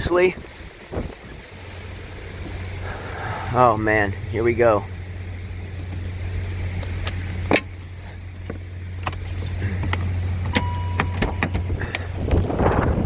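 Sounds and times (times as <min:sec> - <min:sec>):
car engine humming: 0:00.0 - 0:13.0
keys jangling: 0:08.5 - 0:10.0
short electronic beep: 0:10.5 - 0:11.6.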